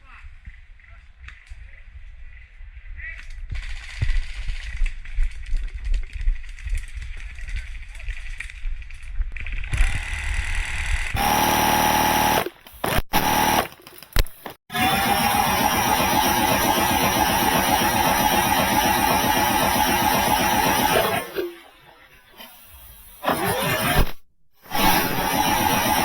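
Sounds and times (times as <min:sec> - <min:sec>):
airsoft minigun firing: 0:09.8 - 0:21.4, 0:23.2 - 0:26.0.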